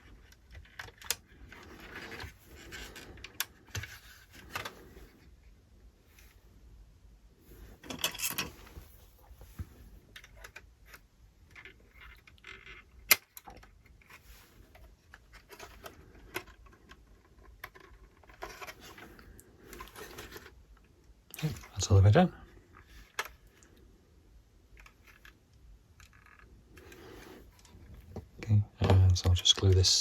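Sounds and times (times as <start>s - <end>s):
plastic parts clicking and tapping: 0.0s - 4.8s, 10.0s - 19.0s.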